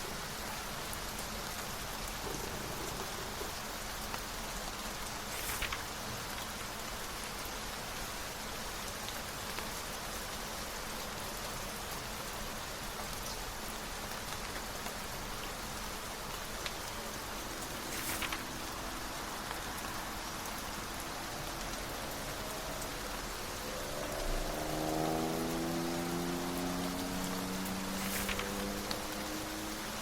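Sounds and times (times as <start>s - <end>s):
steady rain falling: 0.0s - 30.0s
brief rustle: 5.3s - 6.0s, 17.8s - 19.0s, 28.0s - 29.0s.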